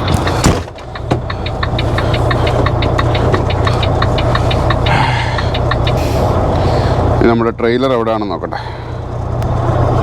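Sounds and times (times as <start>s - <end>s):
fast regular ticking: 0.0s - 6.0s
diesel truck engine idling: 0.0s - 10.0s.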